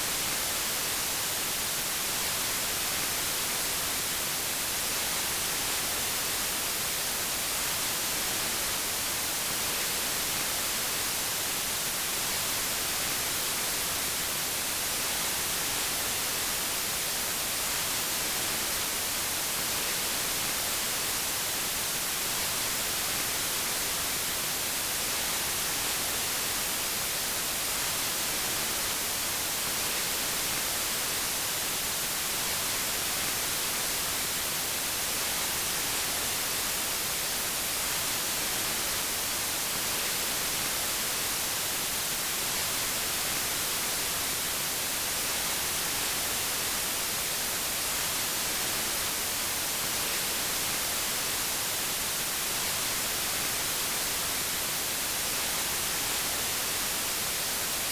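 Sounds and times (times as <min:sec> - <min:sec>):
white noise hiss: 0:00.0 - 0:57.9.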